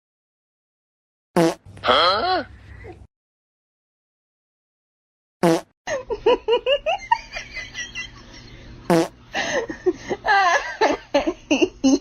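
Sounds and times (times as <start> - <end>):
person laughing: 5.9 - 8.7, 9.4 - 12.0.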